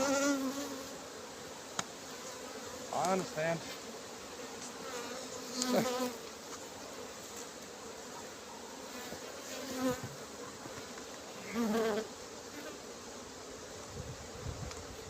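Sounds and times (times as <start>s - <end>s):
bee flying past: 0.0s - 15.0s
honeybees buzzing: 0.0s - 15.0s.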